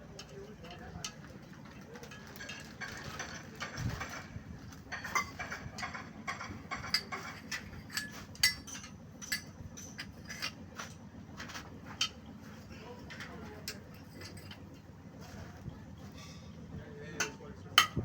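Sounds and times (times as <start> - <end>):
metal tools clinking: 0.1 - 12.2, 13.1 - 14.8.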